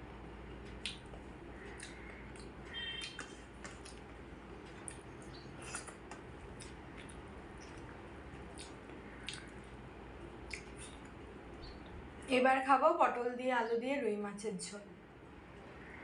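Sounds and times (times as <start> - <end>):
wet chewing and squelching: 0.5 - 12.2.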